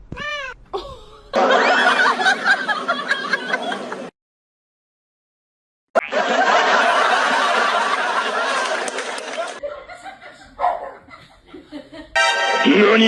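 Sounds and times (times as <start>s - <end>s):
people laughing: 0.8s - 4.1s, 6.1s - 12.2s.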